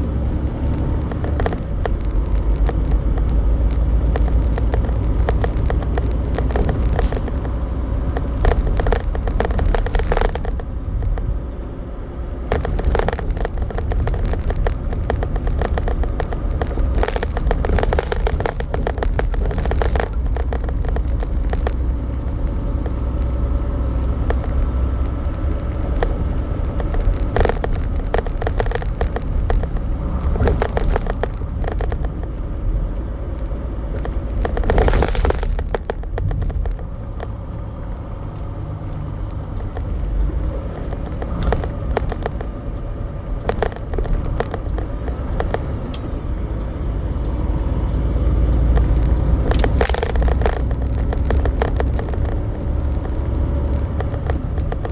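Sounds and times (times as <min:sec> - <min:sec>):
knocks and rattles: 0:00.0 - 0:11.5, 0:12.4 - 0:23.4, 0:24.1 - 0:32.6, 0:33.8 - 0:46.6
truck engine and road rumble: 0:00.0 - 0:54.9
burst of noise: 0:34.2 - 0:38.2.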